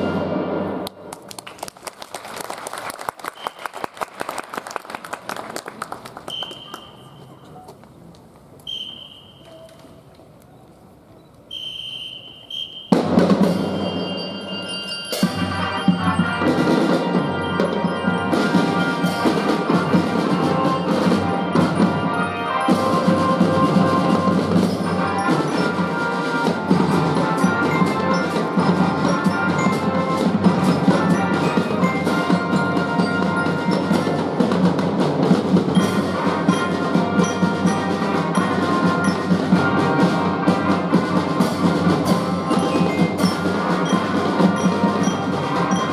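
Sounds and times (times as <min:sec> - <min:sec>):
marching band drums: 0:00.0 - 0:00.8, 0:12.2 - 0:45.9
high whistle tone: 0:03.3 - 0:03.8, 0:06.3 - 0:07.7, 0:08.6 - 0:09.7, 0:11.5 - 0:15.2
glockenspiel: 0:13.4 - 0:34.4, 0:35.7 - 0:40.0, 0:42.0 - 0:45.9.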